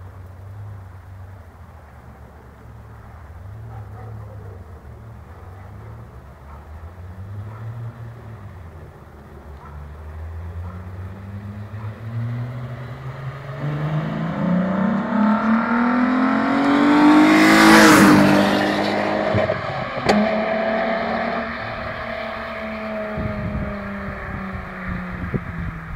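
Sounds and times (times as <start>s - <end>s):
car engine accelerating past: 9.6s - 25.9s.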